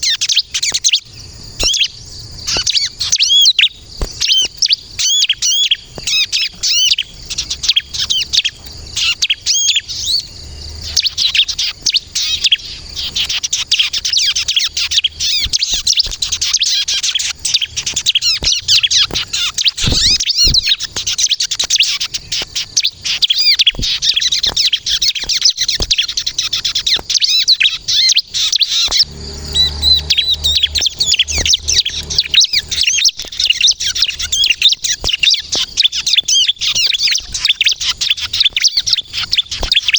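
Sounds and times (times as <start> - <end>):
bird twittering song: 0.0 - 39.9
low hum: 28.9 - 33.2.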